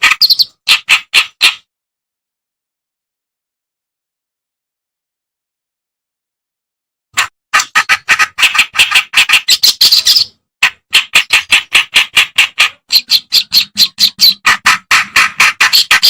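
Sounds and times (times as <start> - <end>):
reed warbler chattering song: 0.0 - 1.6.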